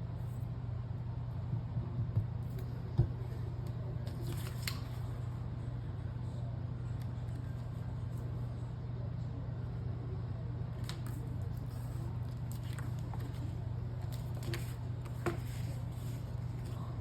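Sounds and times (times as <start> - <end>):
steady low hum: 0.0 - 17.0
paper pages clicking and handling: 4.0 - 5.1, 10.8 - 16.9.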